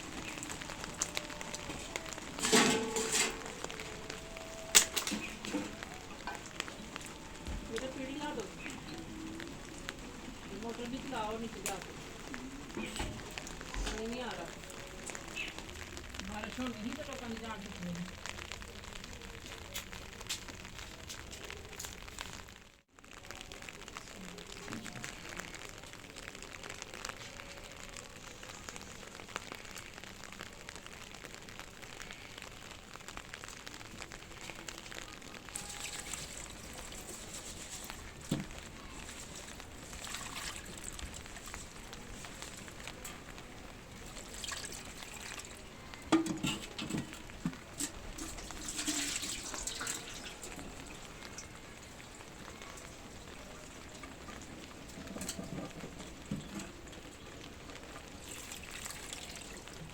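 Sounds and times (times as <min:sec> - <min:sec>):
water trickling and pouring: 0:35.5 - 0:59.9.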